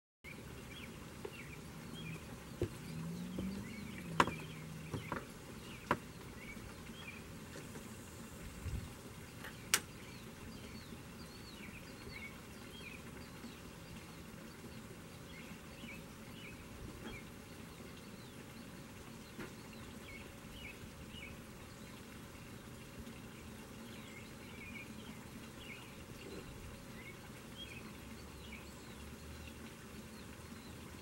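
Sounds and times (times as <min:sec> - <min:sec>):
small birds chirping: 0:00.2 - 0:31.0
low engine hum: 0:00.3 - 0:21.8.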